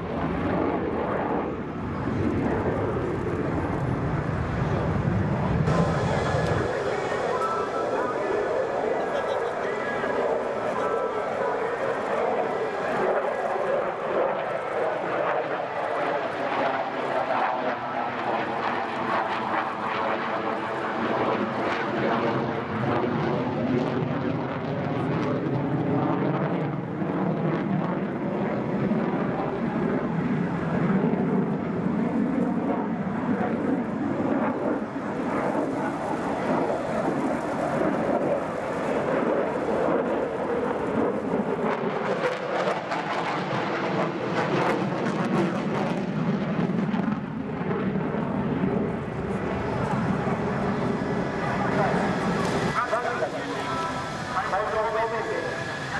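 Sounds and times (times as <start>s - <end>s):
jet engines roaring overhead: 0.0s - 55.9s.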